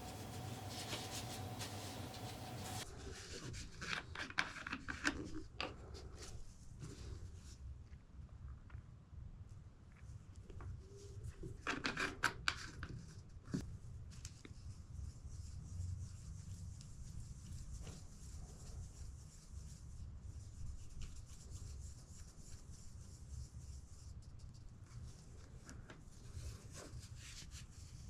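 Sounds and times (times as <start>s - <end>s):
rubbing and scratching on wood: 0.0s - 5.3s.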